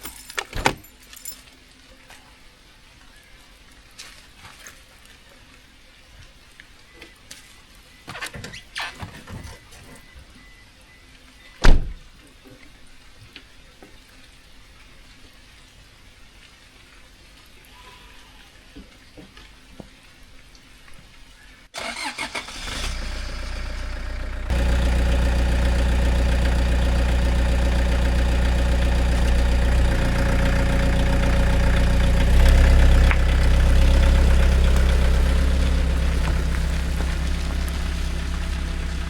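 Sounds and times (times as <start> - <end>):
van engine idling: 21.8 - 39.0
van engine starter cranking: 21.8 - 39.0.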